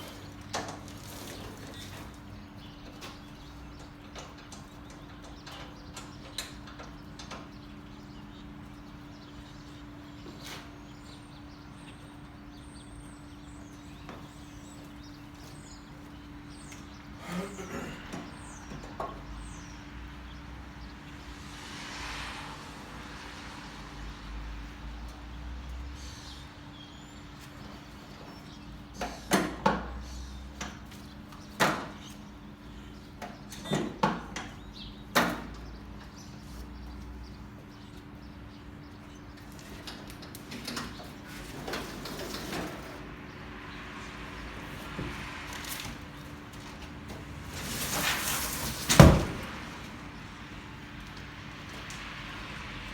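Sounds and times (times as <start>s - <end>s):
scraping and rustling: 0.0s - 4.0s, 44.7s - 50.2s.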